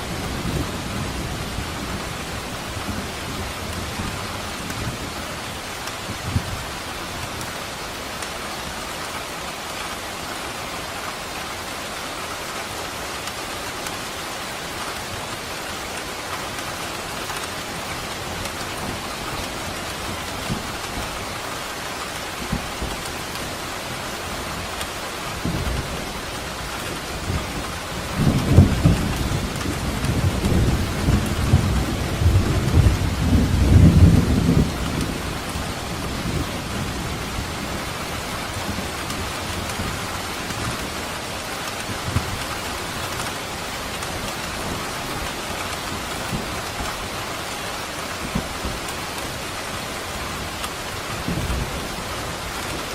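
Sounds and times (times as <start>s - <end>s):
steady rain: 0.0s - 52.9s
rolling thunder: 25.4s - 37.9s.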